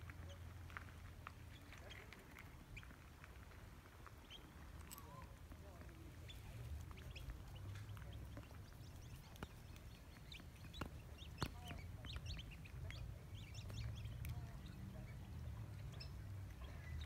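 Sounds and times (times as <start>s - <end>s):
bird chirps and calls: 6.2s - 17.0s.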